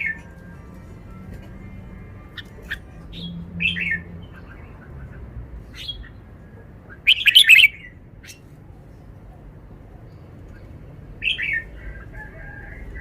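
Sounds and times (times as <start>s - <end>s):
bulbul singing chirps: 2.2s - 8.5s.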